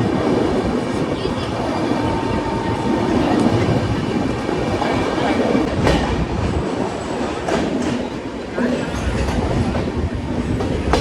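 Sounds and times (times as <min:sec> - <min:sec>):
train wheels rumbling on rails: 0:00.0 - 0:11.0
clacks over rail joints: 0:07.2 - 0:08.2, 0:08.8 - 0:11.0.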